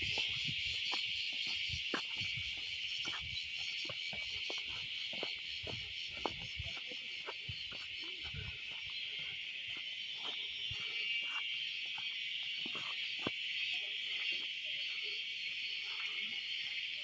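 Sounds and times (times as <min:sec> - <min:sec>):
insect chorus buzzing: 0:00.0 - 0:17.0.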